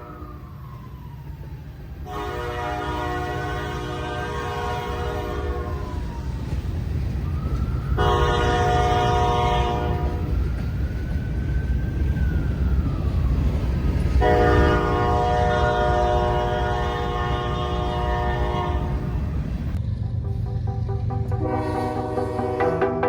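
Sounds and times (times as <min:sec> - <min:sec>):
passing freight train rumble: 0:00.0 - 0:23.0
locomotive air horn blast: 0:02.0 - 0:05.9, 0:08.0 - 0:10.4, 0:14.2 - 0:19.4, 0:21.3 - 0:23.0.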